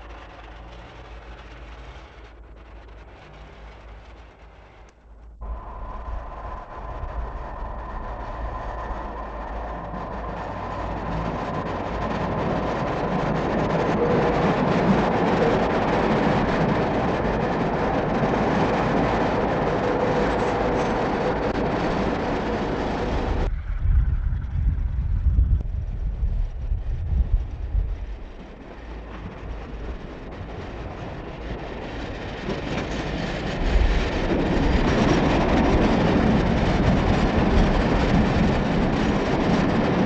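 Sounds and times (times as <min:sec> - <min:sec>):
passenger train on rails: 0:00.0 - 0:40.0.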